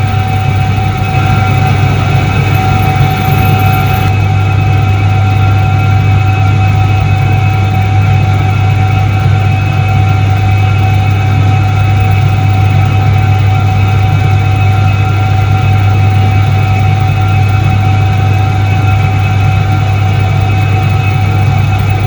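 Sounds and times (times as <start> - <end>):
steady high tone: 0.0 - 4.6
washing machine motor hum: 0.0 - 5.2, 12.1 - 22.0.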